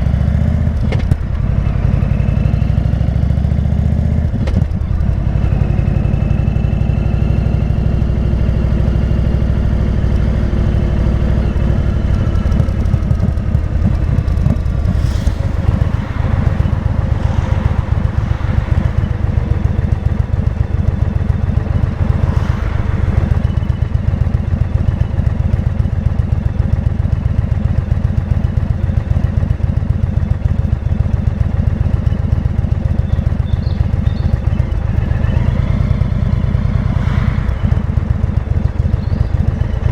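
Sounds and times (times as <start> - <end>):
motorcycle engine rumbling: 0.0 - 39.9
rushing air whooshes: 11.0 - 26.0, 34.3 - 39.9.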